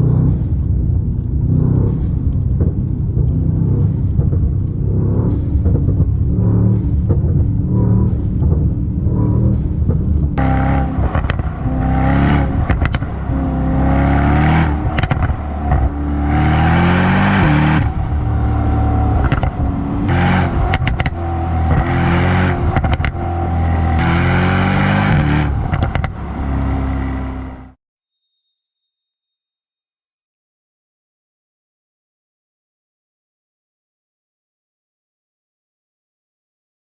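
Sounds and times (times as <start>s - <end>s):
car engine revving: 0.0s - 27.8s
sharp exhaust cracks: 9.5s - 27.7s.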